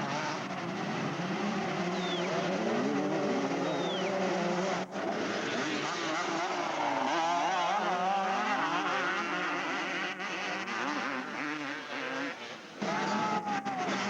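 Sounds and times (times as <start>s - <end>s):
motocross motorcycles revving: 0.0s - 14.0s.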